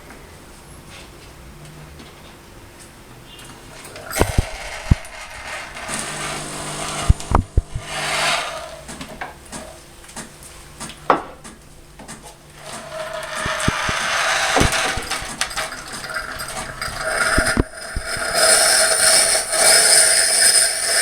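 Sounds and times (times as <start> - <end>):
coffee machine hum: 3.8 - 9.8, 12.4 - 21.0
coffee machine hiss: 3.9 - 9.0, 12.6 - 21.0.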